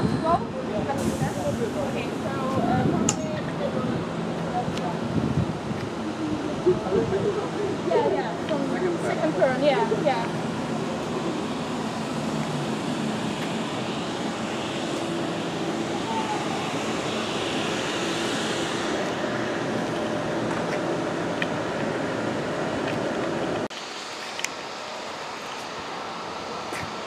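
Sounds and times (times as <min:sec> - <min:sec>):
indistinct voices: 0:00.0 - 0:12.7
wind-like hiss: 0:00.0 - 0:20.9, 0:21.5 - 0:27.0
train rumbling: 0:00.0 - 0:27.0.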